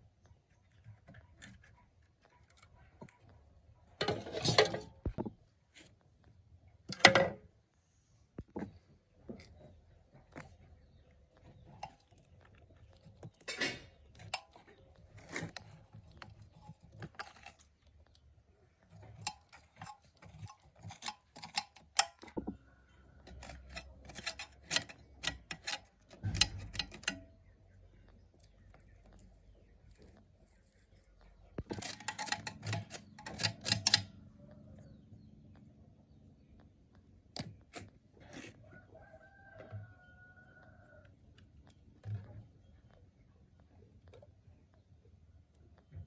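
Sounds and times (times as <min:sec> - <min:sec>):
metal tools clinking: 0:04.0 - 0:05.0, 0:31.6 - 0:34.1.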